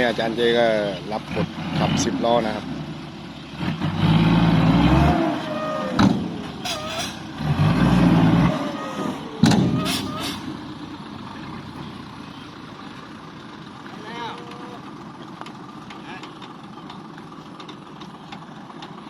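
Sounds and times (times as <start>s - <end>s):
diesel truck engine revving: 0.0s - 19.0s
air brakes hissing and squealing: 5.3s - 7.5s, 8.3s - 10.8s.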